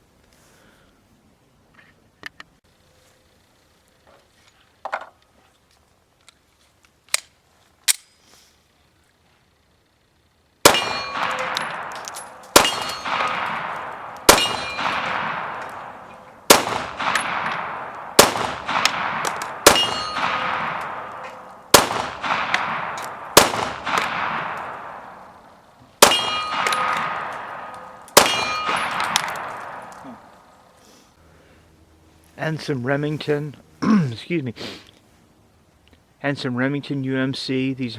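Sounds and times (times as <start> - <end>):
gun handling clicks: 6.2 - 8.2, 11.1 - 25.3, 26.3 - 30.4
pistol shots ringing: 10.6 - 30.7.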